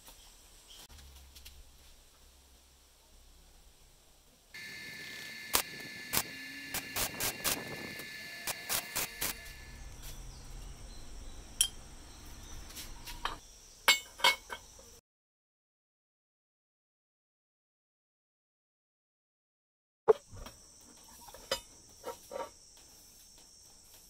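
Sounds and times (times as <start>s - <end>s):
high-pitched buzz: 4.6s - 10.0s.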